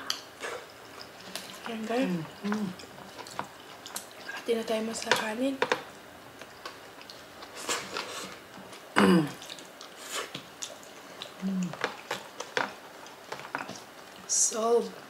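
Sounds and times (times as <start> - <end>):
wet chewing and lip smacks: 0.1 - 4.4, 6.4 - 8.8, 9.4 - 14.3
hummed mm: 2.0 - 2.8, 11.4 - 11.8.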